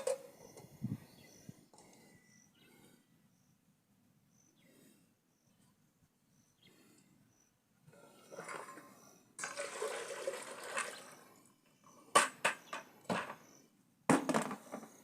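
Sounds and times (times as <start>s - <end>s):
water pouring: 9.4s - 11.3s
sharp knocks and clatter: 12.1s - 13.5s, 14.1s - 15.0s.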